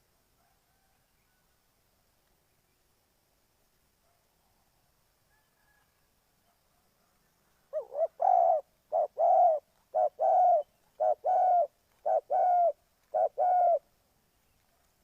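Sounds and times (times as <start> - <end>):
dove cooing: 7.7 - 13.9.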